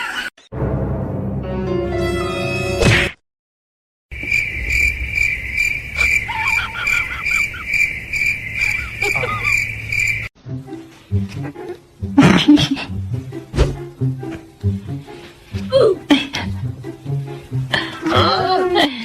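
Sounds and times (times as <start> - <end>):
cricket chirping: 4.1 - 10.3.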